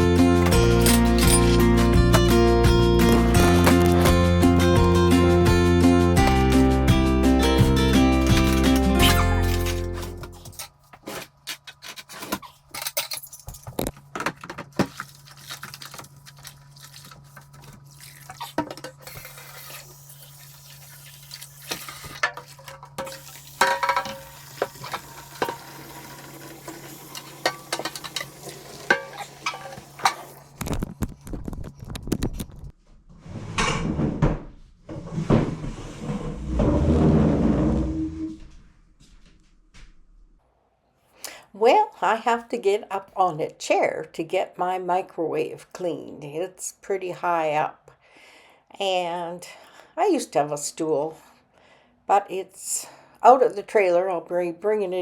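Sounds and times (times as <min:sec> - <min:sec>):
tap water running: 0:14.7 - 0:30.6
dishes clinking: 0:23.0 - 0:25.7, 0:27.1 - 0:30.4.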